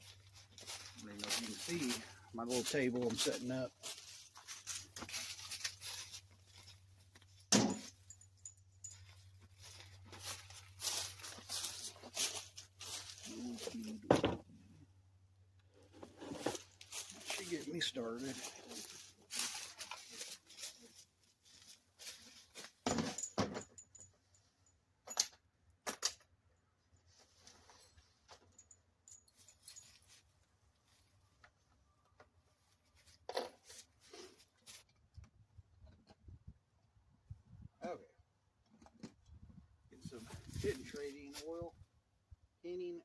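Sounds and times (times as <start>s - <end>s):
tools rattling and rustling: 0.0s - 14.6s, 15.8s - 26.4s, 27.0s - 31.2s
metallic clinks: 4.7s - 13.7s, 22.9s - 25.4s, 27.8s - 30.3s.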